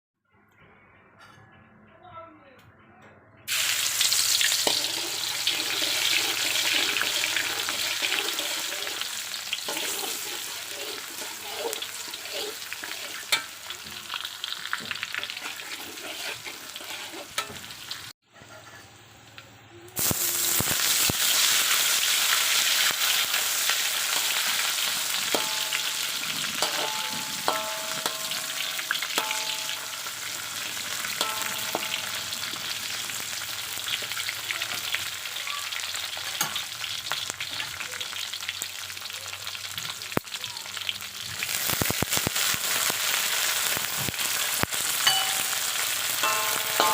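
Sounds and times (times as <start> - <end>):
food sizzling in hot oil: 3.5 - 18.2, 19.9 - 46.9
short ringing clinks: 45.0 - 46.9.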